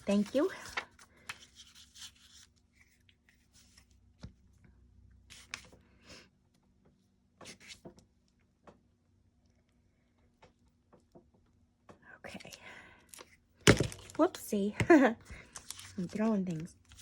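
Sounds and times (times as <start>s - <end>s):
paper rustling: 0.0s - 4.0s, 15.3s - 17.0s.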